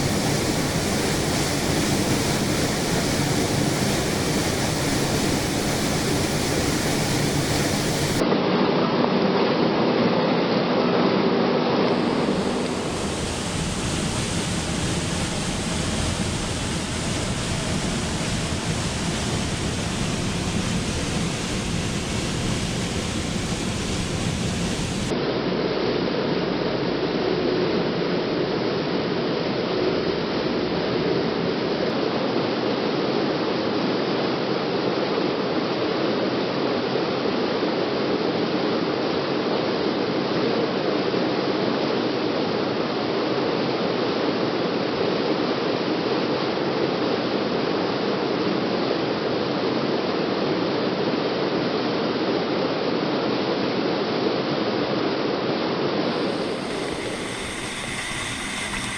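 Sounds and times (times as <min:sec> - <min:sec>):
waterfall rushing: 0:00.0 - 0:08.2, 0:11.9 - 0:25.1, 0:56.1 - 0:58.9.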